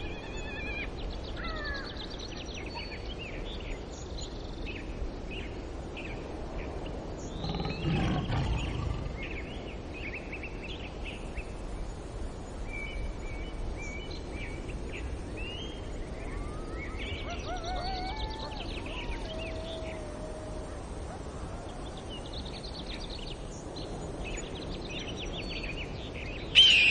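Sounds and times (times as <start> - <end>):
steady outdoor hiss: 0.0 - 26.9
small birds chirping: 6.7 - 10.5.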